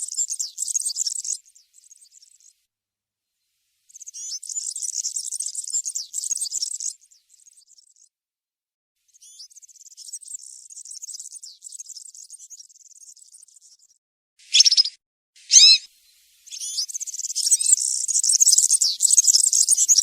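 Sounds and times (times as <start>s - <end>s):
small bird singing high notes: 14.4s - 15.9s, 16.5s - 20.0s.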